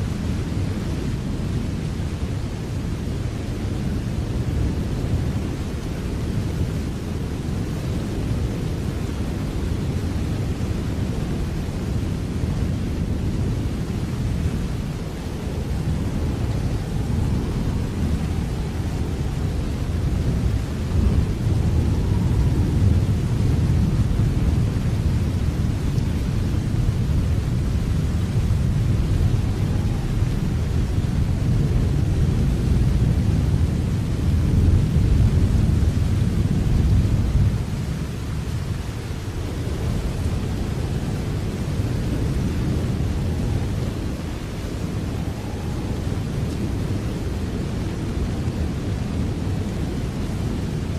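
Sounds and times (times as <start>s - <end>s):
steady rain hiss: 0.0s - 50.9s.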